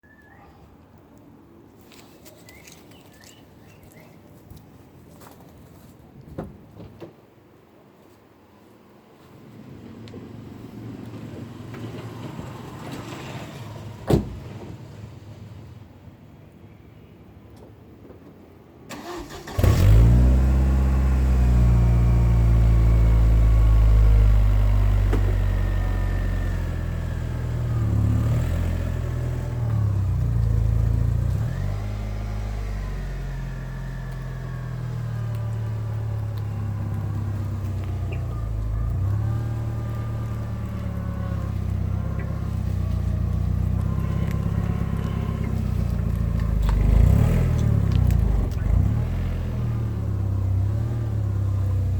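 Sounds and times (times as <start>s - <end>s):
car engine idling: 20.3s - 51.9s.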